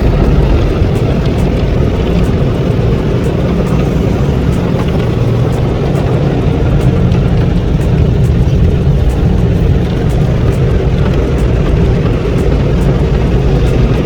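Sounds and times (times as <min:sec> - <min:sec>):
car wash equipment rumbling: 0:00.0 - 0:14.0.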